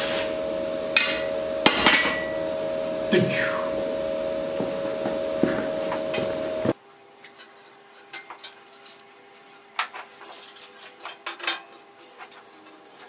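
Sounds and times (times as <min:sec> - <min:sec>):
loud steady tone noise: 0:00.0 - 0:06.8
metal tools clinking: 0:09.8 - 0:13.0.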